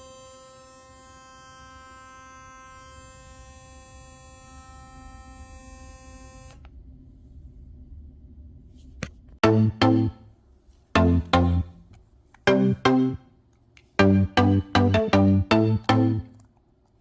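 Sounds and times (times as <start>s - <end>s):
electric toothbrush rattly buzz: 0.0s - 6.5s.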